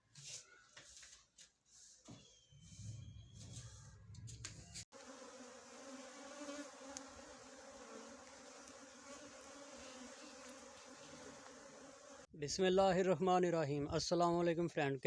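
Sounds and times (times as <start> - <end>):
honeybees buzzing: 4.9 - 12.3.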